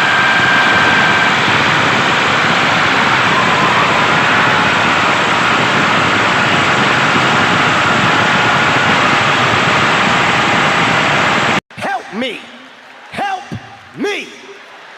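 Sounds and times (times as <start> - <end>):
motor running loudly: 0.0 - 11.6.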